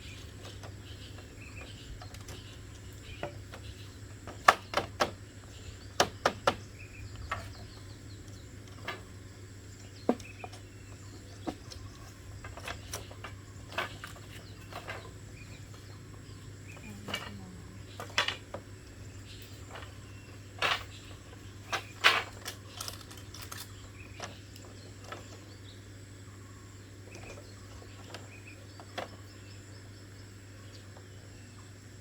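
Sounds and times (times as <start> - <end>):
bird chirps: 0.0 - 32.0
faint insect chirps: 0.0 - 32.0
steady low hum: 0.0 - 32.0.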